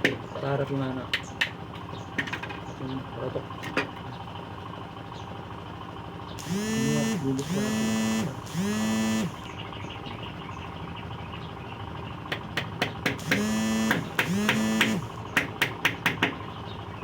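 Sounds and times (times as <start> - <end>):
hammer knocking nails into wood: 12.3 - 16.4.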